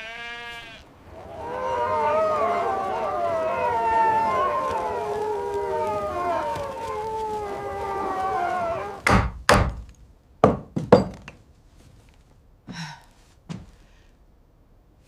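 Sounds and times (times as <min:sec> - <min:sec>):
wolves howling: 0:00.9 - 0:09.2
heavy thuds and knocks: 0:09.0 - 0:11.4.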